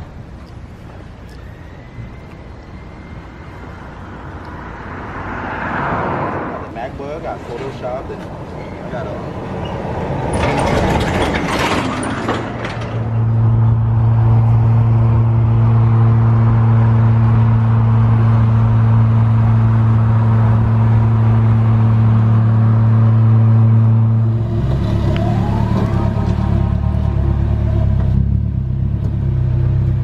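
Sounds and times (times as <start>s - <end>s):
car engine running: 15.1s - 30.0s.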